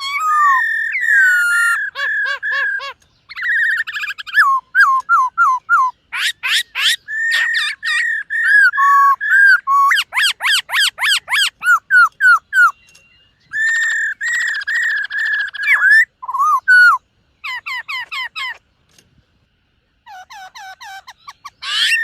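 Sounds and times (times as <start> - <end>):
bird singing whistled notes: 0.0 - 18.6, 20.4 - 22.0.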